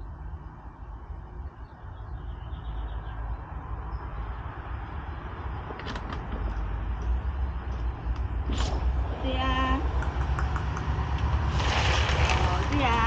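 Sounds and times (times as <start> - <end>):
sharp clicks: 9.9 - 11.3.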